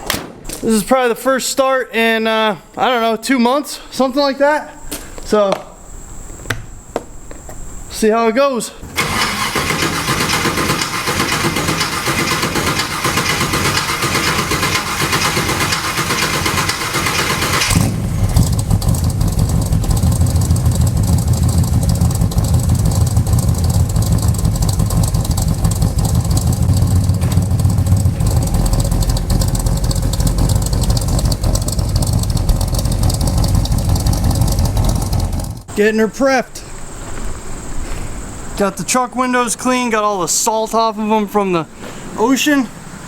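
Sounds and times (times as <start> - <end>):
truck engine cranking and idling: 8.8 - 35.8.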